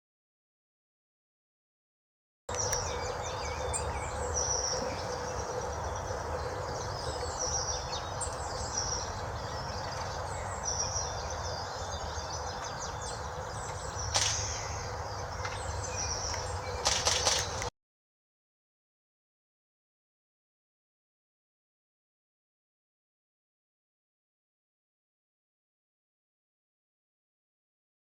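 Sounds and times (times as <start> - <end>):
small birds chirping: 2.5 - 17.7
steady background hum: 2.5 - 17.7.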